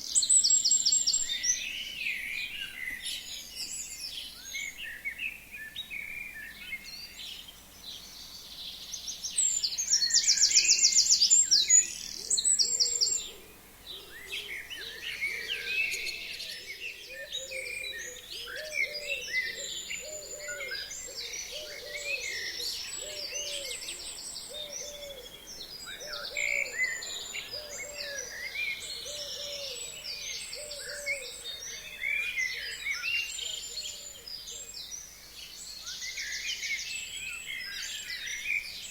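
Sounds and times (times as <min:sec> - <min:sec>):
songbirds chirping and whistling: 0:00.0 - 0:38.9.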